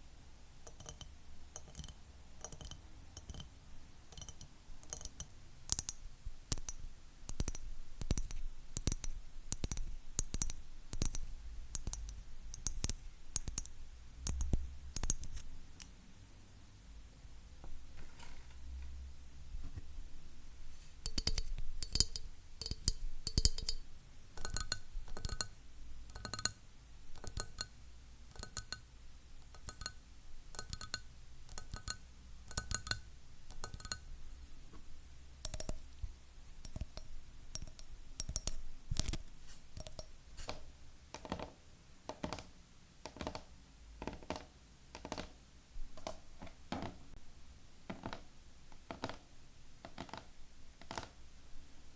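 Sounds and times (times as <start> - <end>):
fingernails tapping on hard objects: 39.8 - 41.5, 42.1 - 45.3, 49.8 - 51.1.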